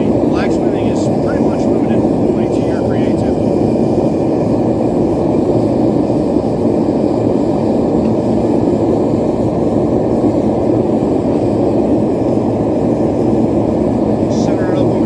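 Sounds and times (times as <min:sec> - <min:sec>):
forge burner rushing: 0:00.0 - 0:15.0.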